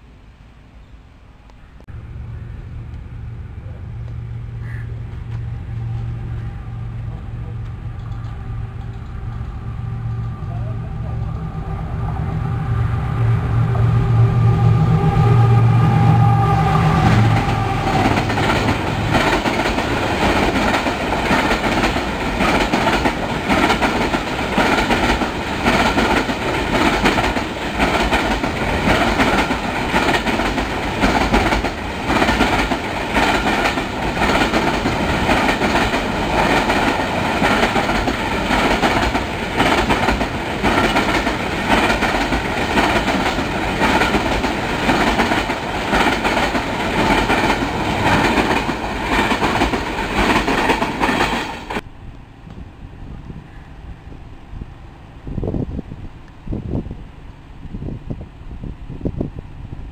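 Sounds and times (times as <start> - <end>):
diesel locomotive drone: 0.0 - 59.9
wheels rumbling on rail: 0.0 - 59.9
wheels clicking over rail joints: 17.3 - 51.8.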